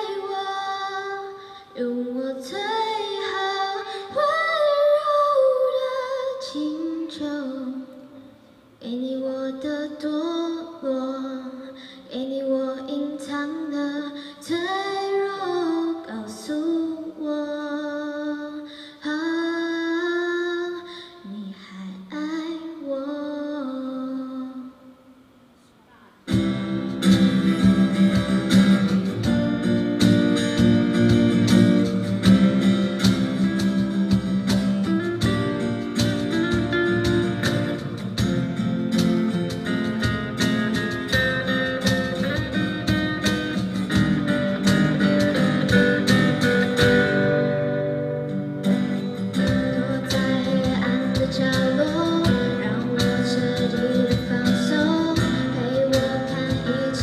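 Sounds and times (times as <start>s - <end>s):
live band with guitars and drums: 26.3s - 57.0s.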